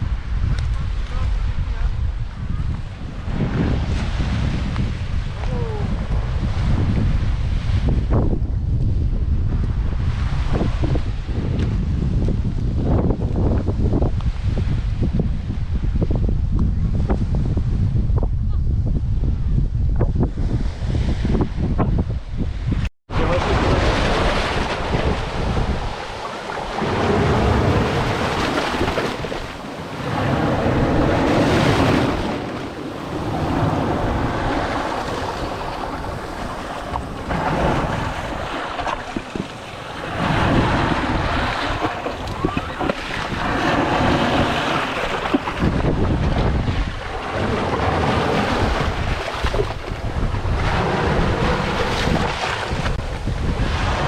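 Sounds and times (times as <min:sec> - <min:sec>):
wind buffeting microphone: 0:00.0 - 0:54.0
waves washing on shore: 0:23.1 - 0:54.0.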